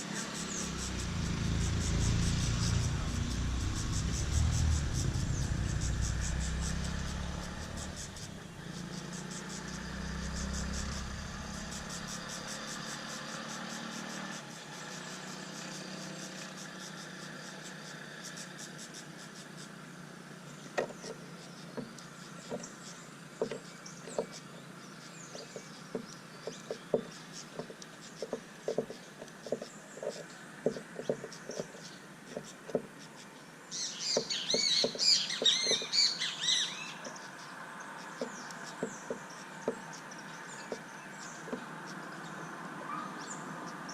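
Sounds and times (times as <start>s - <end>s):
small birds chirping: 0.0s - 43.9s
passing vehicle rumble: 0.1s - 16.2s.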